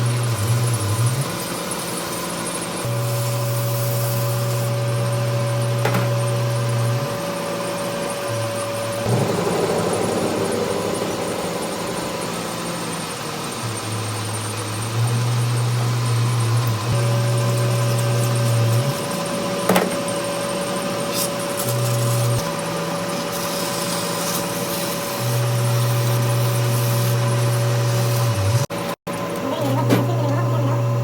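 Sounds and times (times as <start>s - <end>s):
power tool humming: 9.0s - 13.6s.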